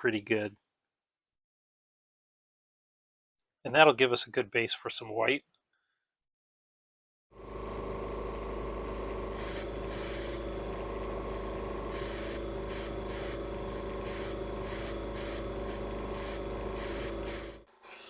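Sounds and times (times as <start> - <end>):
compressor humming: 7.4 - 17.7
airbrush spraying: 8.9 - 18.0.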